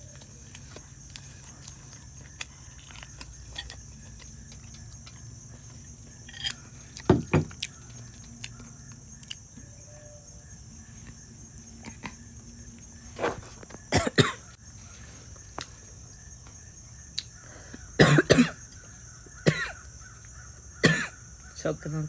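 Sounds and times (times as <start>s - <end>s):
woman coughing: 13.9s - 14.5s, 18.0s - 18.6s, 19.4s - 19.8s, 20.8s - 21.2s.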